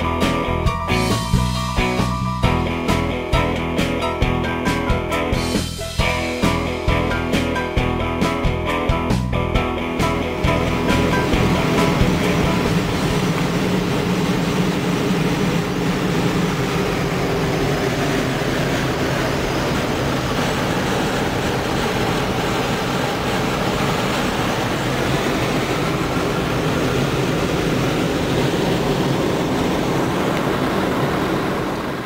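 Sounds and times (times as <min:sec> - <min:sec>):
car driving at highway speed: 0:09.9 - 0:32.0.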